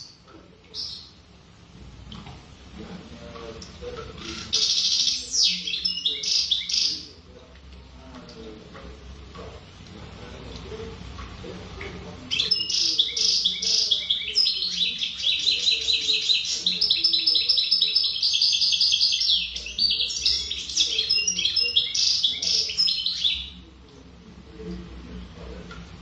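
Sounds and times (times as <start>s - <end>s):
finch twittering song: 4.2s - 7.1s, 12.3s - 23.6s.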